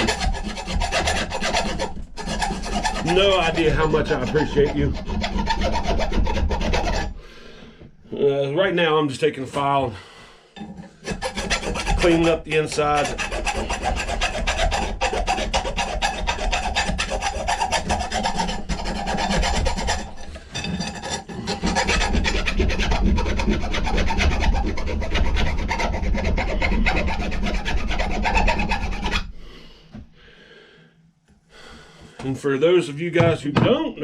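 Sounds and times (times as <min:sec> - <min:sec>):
hand file scraping steel: 0:00.0 - 0:07.9, 0:10.5 - 0:29.4.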